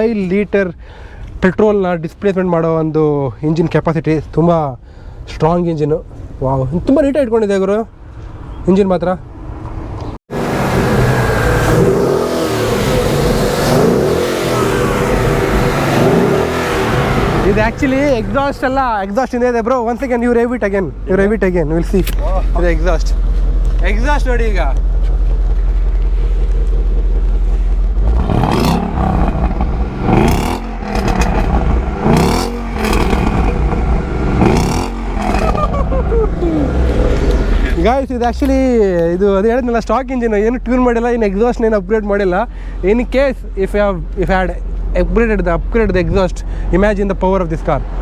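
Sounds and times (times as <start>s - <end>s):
car engine revving: 9.4s - 19.0s, 22.5s - 38.6s.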